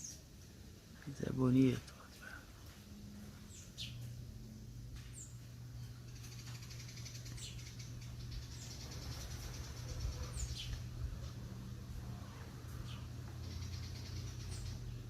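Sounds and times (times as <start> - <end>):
steady low hum: 0.0 - 15.0
high bird chirps: 5.1 - 10.9, 12.8 - 15.0.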